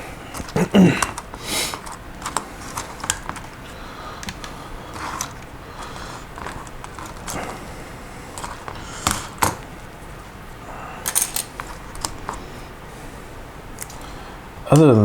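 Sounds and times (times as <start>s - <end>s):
plastic pieces clicking: 0.3s - 3.6s, 4.2s - 7.6s, 8.3s - 9.7s, 11.0s - 12.4s.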